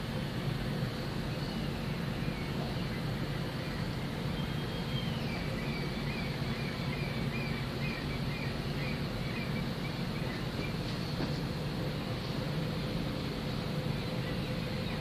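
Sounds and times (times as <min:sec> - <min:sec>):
ship engines humming: 0:00.0 - 0:15.0
small bird chirping: 0:01.3 - 0:10.9.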